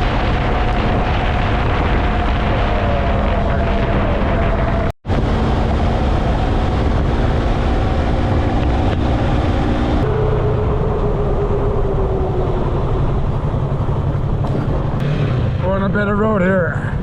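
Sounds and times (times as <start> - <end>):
wind rushing over microphone: 0.0 - 17.0
motorcycle engine running: 13.1 - 15.6.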